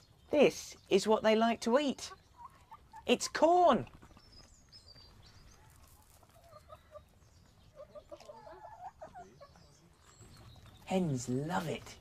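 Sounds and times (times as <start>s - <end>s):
hens clucking faintly: 1.9s - 10.9s.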